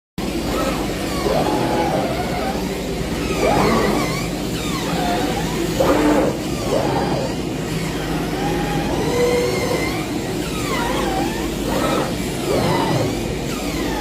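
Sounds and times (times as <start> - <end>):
cutting machine motors whining: 0.2 - 14.0
mechanical running noise: 0.2 - 14.0.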